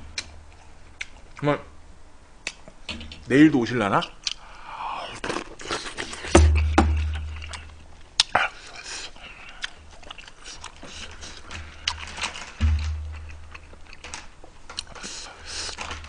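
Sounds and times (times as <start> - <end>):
chewing food: 7.2 - 16.0
low thump: 12.6 - 13.6.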